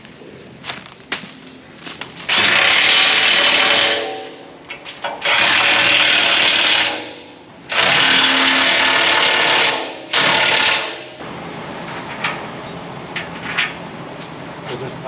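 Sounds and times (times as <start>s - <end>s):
impact wrench bursts: 2.3s - 11.2s.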